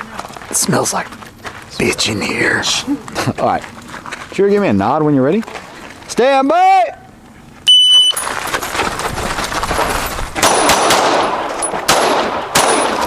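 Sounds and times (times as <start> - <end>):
shot timer beep: 7.7 - 8.2
pistol shots: 10.4 - 13.0.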